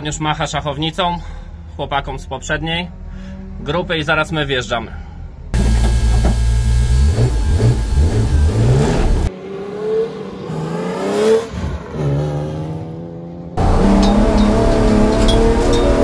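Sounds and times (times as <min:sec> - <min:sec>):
car engine revving: 0:05.6 - 0:16.0.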